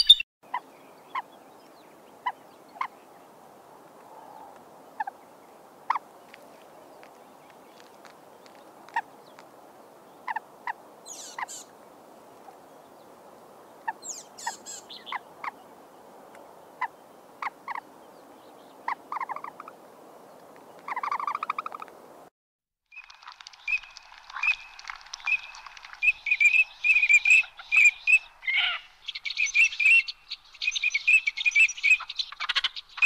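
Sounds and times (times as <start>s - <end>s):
faint steady hiss: 0.5s - 22.3s
raspy animal calls: 26.9s - 29.2s.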